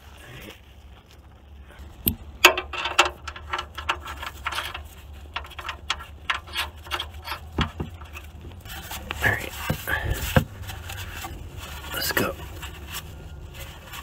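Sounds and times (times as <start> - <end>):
hand tools clicking on metal: 2.0 - 8.3.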